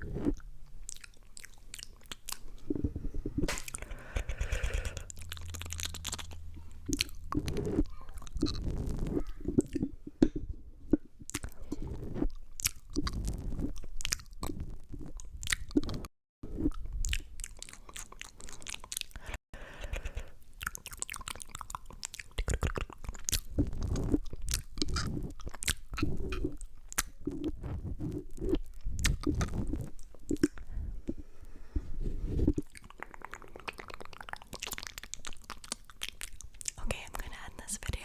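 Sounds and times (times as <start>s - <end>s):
wet mouth clicks and smacks: 0.3s - 2.7s, 3.4s - 16.1s, 16.7s - 31.2s, 32.5s - 37.5s
low rumbling on microphone: 2.6s - 11.1s, 30.6s - 32.6s.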